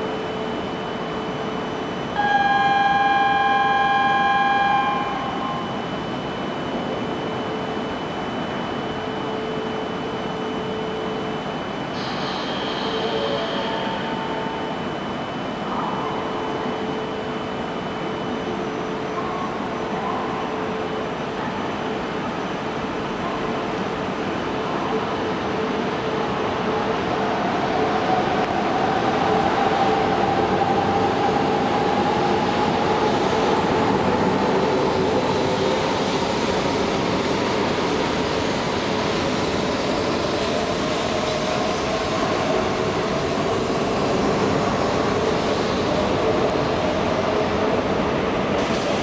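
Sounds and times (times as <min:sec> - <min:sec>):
train running noise: 0:00.0 - 0:49.0
electric train motor whine: 0:02.2 - 0:05.9.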